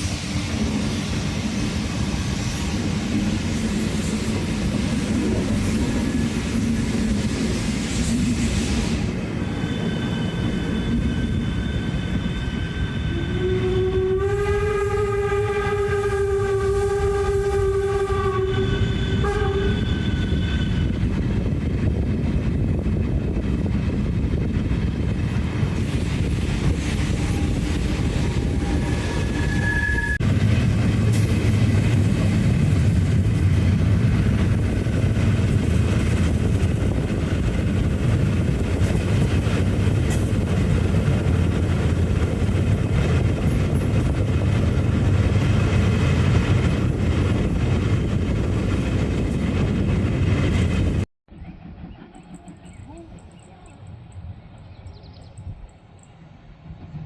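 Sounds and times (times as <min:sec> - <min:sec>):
train rumbling: 0:00.0 - 0:57.0
train horn long note: 0:12.9 - 0:20.4.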